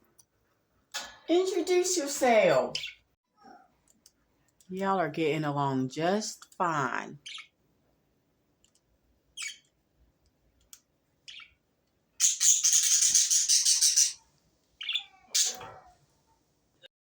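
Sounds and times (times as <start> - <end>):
budgerigars chirping: 2.8 - 3.0, 7.2 - 7.5, 9.4 - 9.7, 11.3 - 11.6, 12.2 - 14.2, 14.8 - 15.6.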